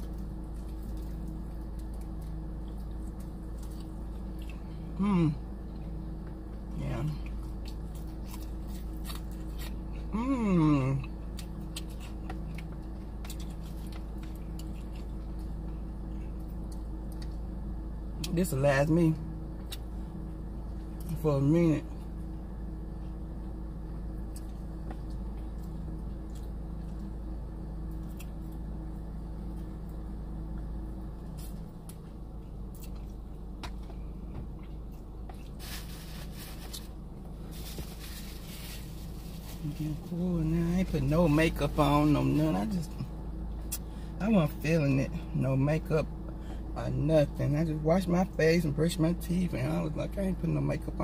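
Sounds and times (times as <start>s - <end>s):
person chewing: 0.0s - 4.8s, 7.2s - 10.0s, 11.0s - 17.4s, 27.9s - 28.6s, 31.3s - 35.9s
steady low hum: 0.0s - 51.0s
person eating clicks and smacks: 11.3s - 15.5s, 32.7s - 34.0s
crunchy rustling: 34.6s - 40.1s.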